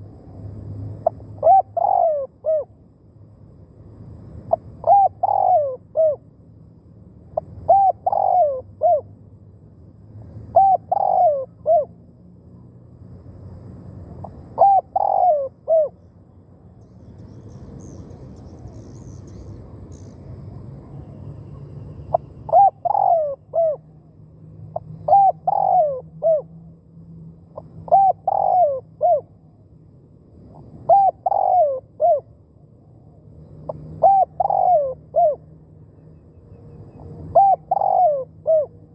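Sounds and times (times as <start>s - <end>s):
dove cooing: 1.4s - 2.7s, 4.5s - 6.2s, 7.4s - 9.1s, 10.5s - 12.0s, 14.2s - 16.0s, 22.1s - 23.9s, 24.8s - 26.5s, 27.6s - 29.3s, 30.9s - 32.3s, 33.6s - 35.4s, 37.0s - 38.9s.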